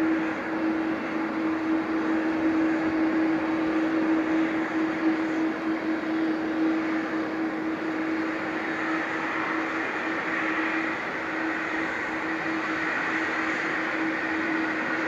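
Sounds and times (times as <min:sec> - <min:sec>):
high jet engine whine: 0:00.0 - 0:15.0
jet engines running: 0:00.0 - 0:15.0.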